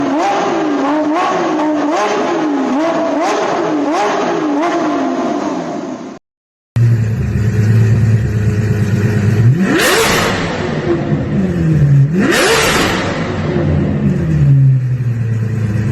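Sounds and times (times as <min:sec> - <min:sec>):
sports car engine revving: 0:00.0 - 0:05.6, 0:06.8 - 0:15.9
engine idling low: 0:06.8 - 0:15.9.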